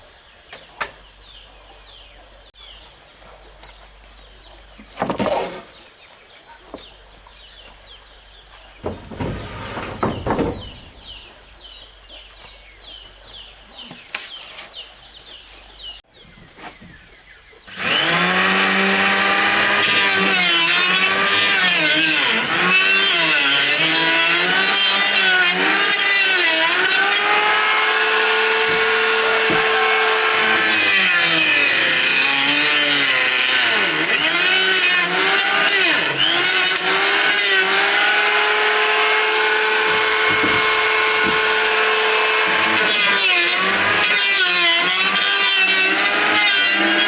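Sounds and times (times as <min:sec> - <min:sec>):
chainsaw cutting wood: 0:08.8 - 0:11.2, 0:17.7 - 0:47.0.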